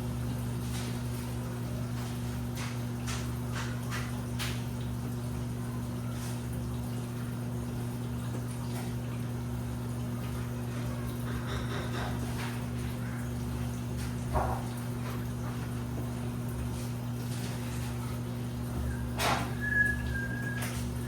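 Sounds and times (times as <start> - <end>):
washing machine motor hum: 0.0 - 21.0
water sloshing in drum: 6.2 - 21.0.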